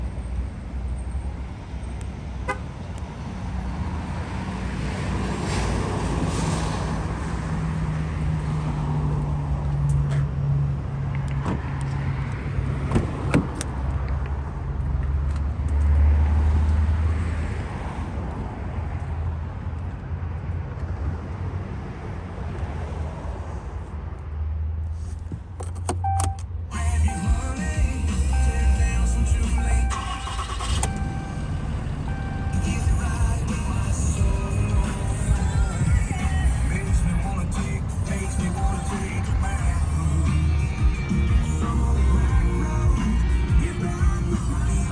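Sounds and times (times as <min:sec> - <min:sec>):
diesel engine droning: 0:26.0 - 0:44.9.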